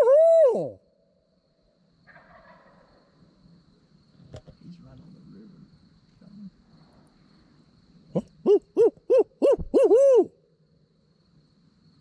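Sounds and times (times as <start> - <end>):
owl hooting: 0.0 - 0.9, 8.1 - 10.4.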